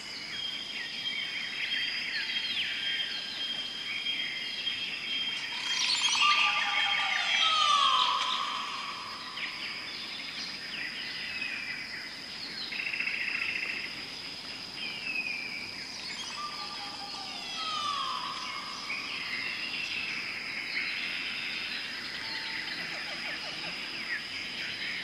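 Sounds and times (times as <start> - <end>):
steady high-pitched whine: 0.0 - 25.0
birds chirping and calling: 4.2 - 11.4, 15.9 - 25.0.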